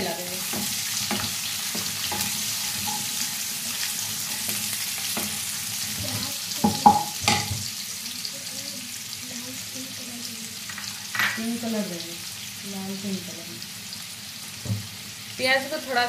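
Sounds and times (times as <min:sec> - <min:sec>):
onion sizzling in hot oil: 0:00.0 - 0:16.0
wooden spatula scraping a pan: 0:00.4 - 0:06.3
spatula knocking against pan: 0:00.5 - 0:03.2, 0:06.6 - 0:07.7.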